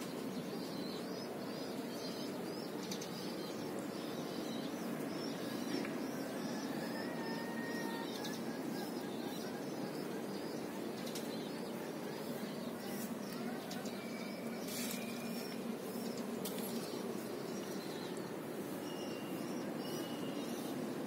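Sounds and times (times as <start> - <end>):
outdoor air rush: 0.0 - 21.0
small birds chirping: 0.0 - 21.0.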